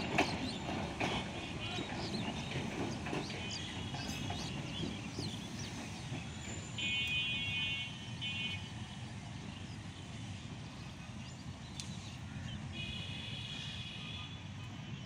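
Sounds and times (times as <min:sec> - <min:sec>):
train rumbling: 0:00.0 - 0:12.7.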